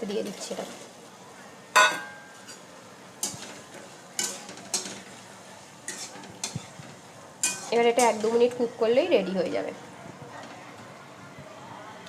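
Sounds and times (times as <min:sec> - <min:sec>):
soft steady sizzle: 0:00.0 - 0:12.0
spatula knocking and scraping pan: 0:05.9 - 0:08.6.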